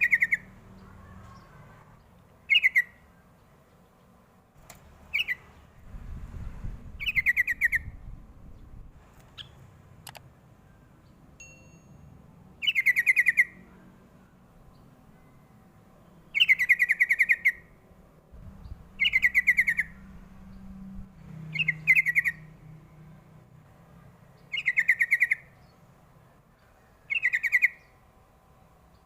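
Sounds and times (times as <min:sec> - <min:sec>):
bird singing bubbling song: 0:18.6 - 0:19.9.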